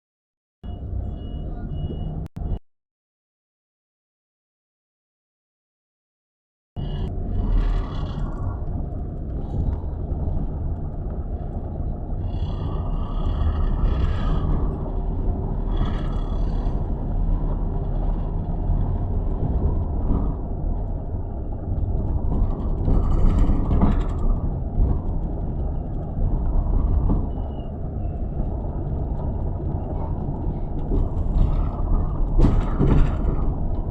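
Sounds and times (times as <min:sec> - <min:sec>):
traffic rumble of passing vehicles: 0:00.7 - 0:02.3, 0:06.8 - 0:33.9.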